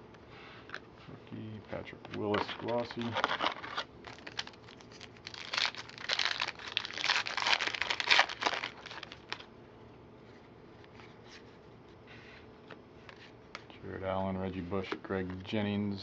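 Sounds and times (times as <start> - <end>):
foil wrapper tearing and crinkling: 2.4 - 9.5.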